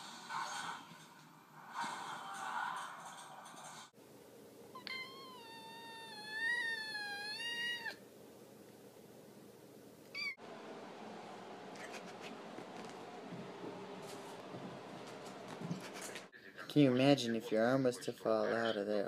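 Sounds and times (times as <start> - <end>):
cat meowing: 4.8 - 8.0, 10.1 - 10.4.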